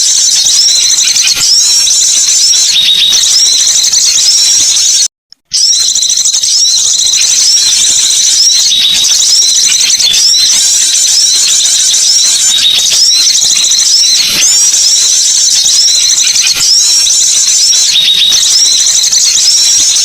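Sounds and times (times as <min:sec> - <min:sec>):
songbird chirping: 0:05.7 - 0:20.0.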